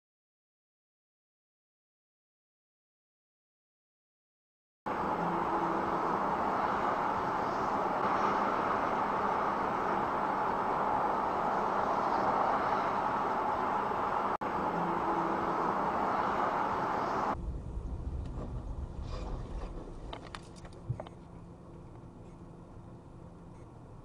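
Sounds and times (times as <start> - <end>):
car road and engine noise: 4.9 - 24.0
low rumble: 6.3 - 24.0.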